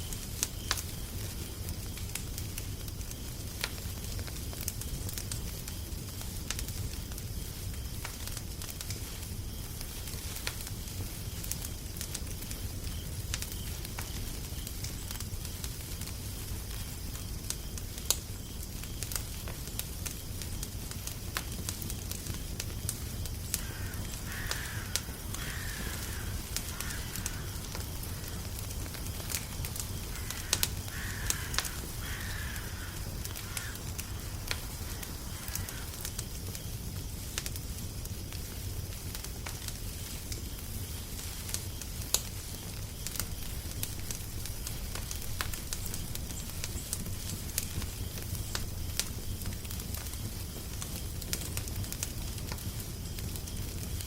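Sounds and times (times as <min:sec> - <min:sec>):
fire crackling and popping: 0:00.0 - 0:54.0
bird calling: 0:23.6 - 0:36.0.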